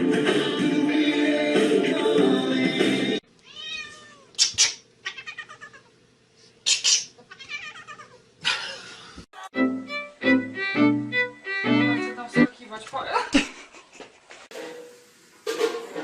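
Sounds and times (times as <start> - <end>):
background music: 0.0 - 3.2, 9.4 - 12.7
cat meowing: 3.4 - 4.4, 5.0 - 5.9, 7.3 - 8.2.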